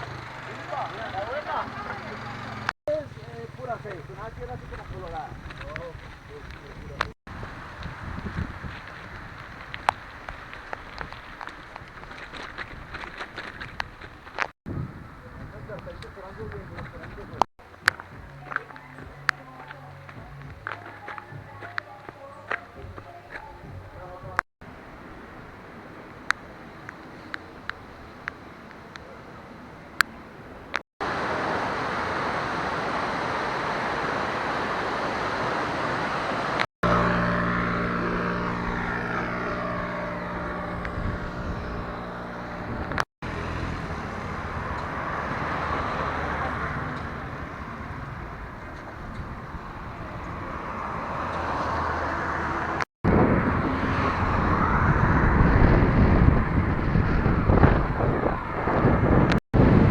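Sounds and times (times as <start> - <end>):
vehicle engine and road noise: 0.0 - 59.9
wind buffeting microphone: 3.7 - 17.4, 36.9 - 43.0, 43.9 - 51.4, 53.0 - 59.9.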